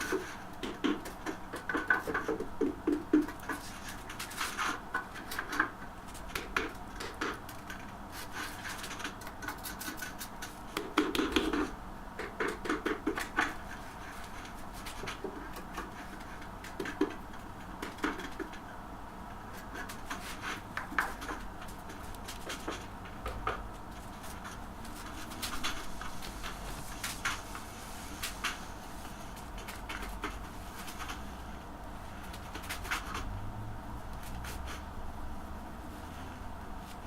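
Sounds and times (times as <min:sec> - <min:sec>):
hard objects clicking and knocking: 0:00.0 - 0:08.0, 0:08.6 - 0:13.8.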